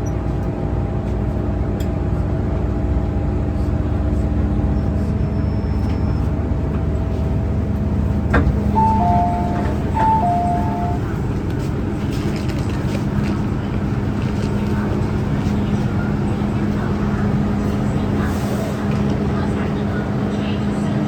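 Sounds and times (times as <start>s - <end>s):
train rumble: 0.0s - 21.0s
humming whine: 5.5s - 11.4s
two-tone electronic chime: 8.8s - 11.1s.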